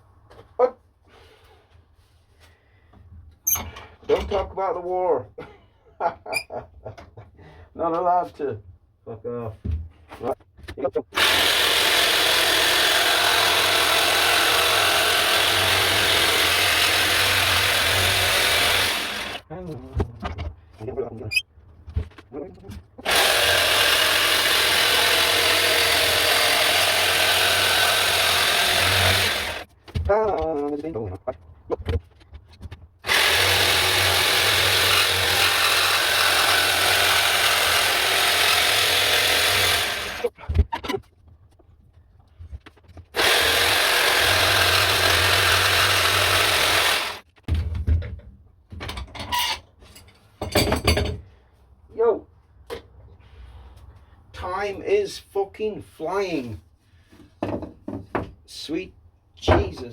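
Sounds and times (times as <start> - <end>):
electric jigsaw cutting wood: 11.2 - 19.4, 23.0 - 29.7, 33.0 - 40.4, 43.2 - 47.3
power tool rasping on wood: 11.2 - 19.4, 23.0 - 29.7, 33.0 - 40.3, 43.2 - 47.2.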